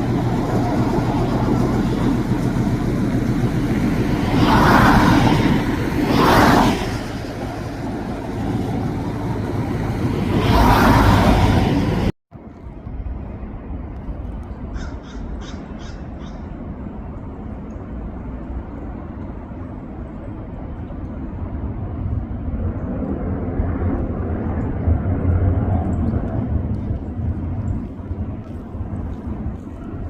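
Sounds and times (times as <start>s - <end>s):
loud rushing noise: 0.0s - 12.2s
low rumble: 0.0s - 30.0s
crow cawing: 14.7s - 16.5s.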